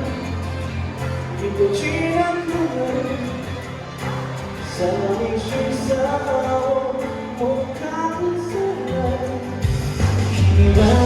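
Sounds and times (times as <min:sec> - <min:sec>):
person singing: 0:00.0 - 0:11.0
heavy low bass: 0:08.6 - 0:11.0.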